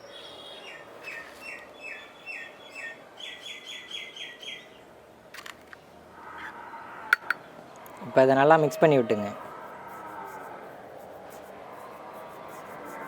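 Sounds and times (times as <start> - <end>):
bird singing: 0.0 - 4.9.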